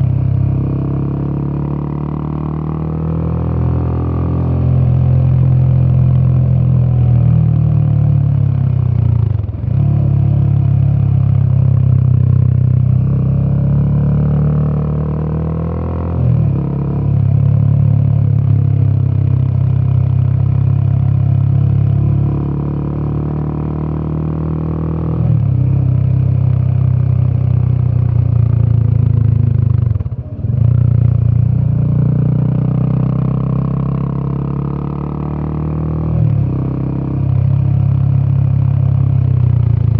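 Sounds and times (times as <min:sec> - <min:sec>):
motorcycle engine under load: 0:36.2 - 0:39.9.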